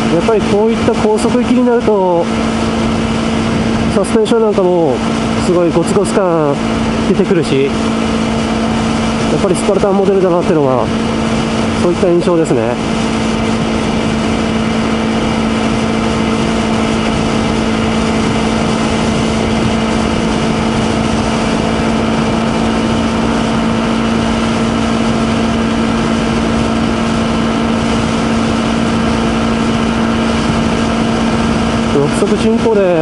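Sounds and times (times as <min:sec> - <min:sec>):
motorcycle engine cruising: 0:00.0 - 0:33.0
wind rushing: 0:12.7 - 0:32.0.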